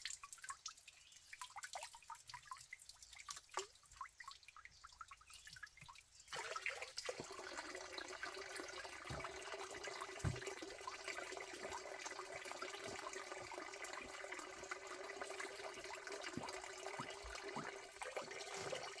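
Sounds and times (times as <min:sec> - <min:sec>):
running water: 0:00.0 - 0:19.0
small knocks: 0:10.2 - 0:10.5.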